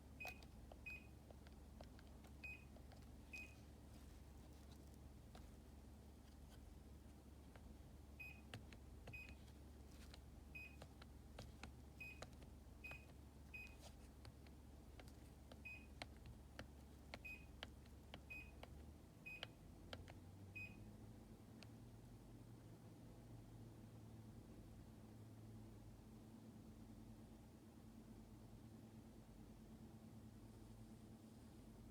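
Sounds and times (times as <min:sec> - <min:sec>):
low background hum: 0:00.0 - 0:31.9
air conditioner beeps: 0:00.1 - 0:03.8, 0:08.0 - 0:14.1, 0:15.2 - 0:20.9.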